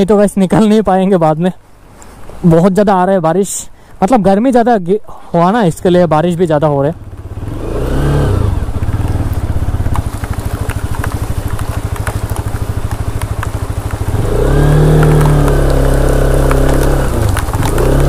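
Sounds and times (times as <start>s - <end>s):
motorcycle engine running: 6.4s - 18.0s.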